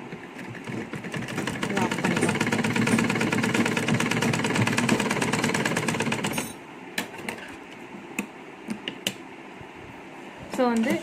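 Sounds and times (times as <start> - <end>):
sewing machine stitching: 0.2 - 6.6.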